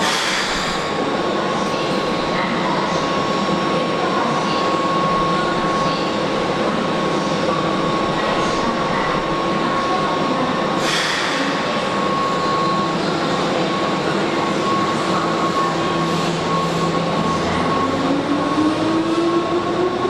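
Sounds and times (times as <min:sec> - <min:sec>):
air brakes hissing: 0:10.8 - 0:11.6.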